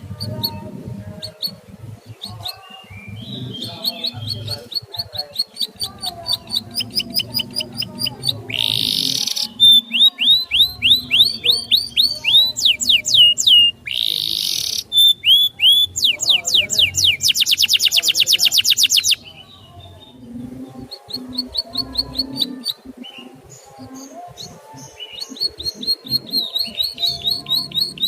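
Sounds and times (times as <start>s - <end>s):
songbird whistling: 2.2s - 19.4s, 25.0s - 28.0s
bird harsh raspy phrase: 3.2s - 19.2s.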